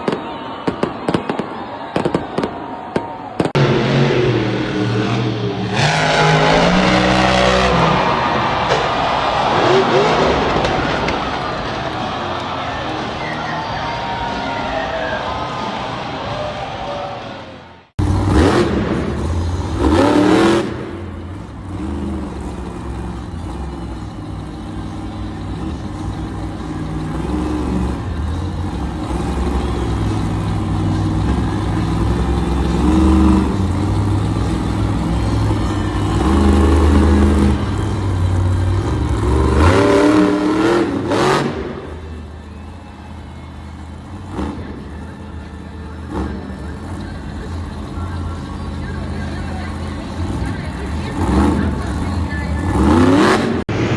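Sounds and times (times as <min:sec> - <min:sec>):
monster truck engine revving: 0:00.0 - 0:53.9.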